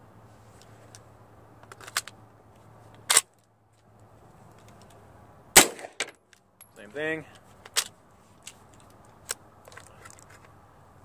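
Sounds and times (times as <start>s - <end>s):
metallic clicks of gun handling: 0.6s - 2.2s, 4.4s - 5.0s, 5.6s - 10.6s.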